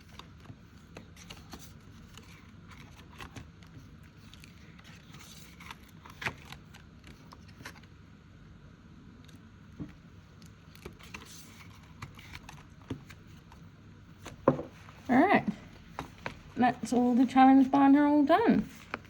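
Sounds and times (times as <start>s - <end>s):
paper rustling: 0.0s - 7.9s, 10.6s - 13.6s, 18.6s - 19.0s.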